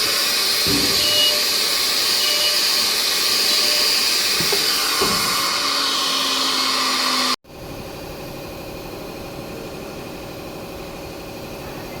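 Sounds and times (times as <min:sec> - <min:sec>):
cnc router hissing: 0:00.0 - 0:07.4.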